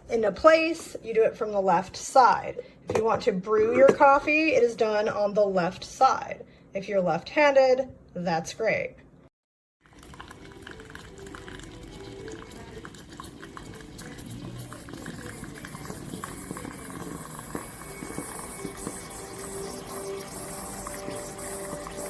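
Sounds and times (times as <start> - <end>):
espresso machine bubbling and hissing: 9.8 - 22.0.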